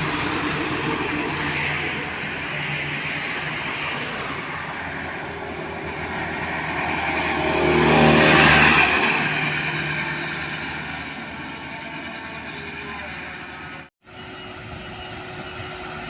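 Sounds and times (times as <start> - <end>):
vehicle passing by: 0.0 - 11.3.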